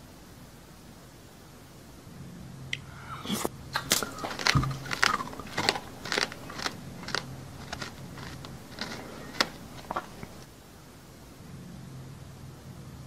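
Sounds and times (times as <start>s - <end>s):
crunchy chewing: 3.2s - 10.5s.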